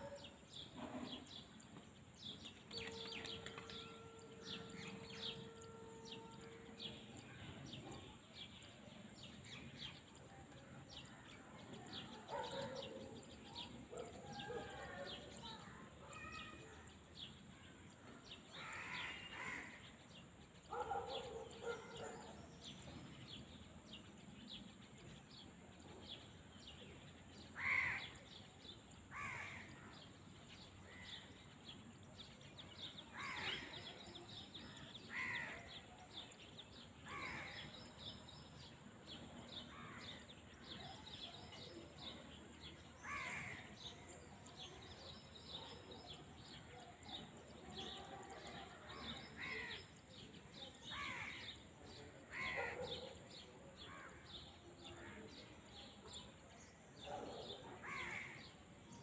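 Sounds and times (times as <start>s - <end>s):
harsh caw-like bird calls: 27.6s - 28.1s.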